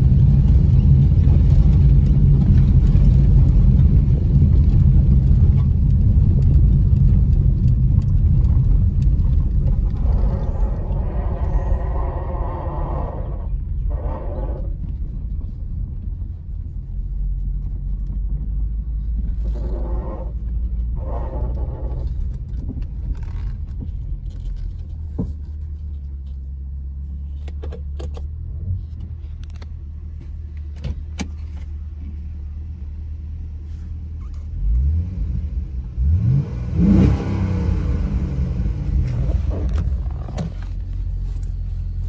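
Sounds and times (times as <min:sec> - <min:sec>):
engine revs rising: 0:34.6 - 0:40.1.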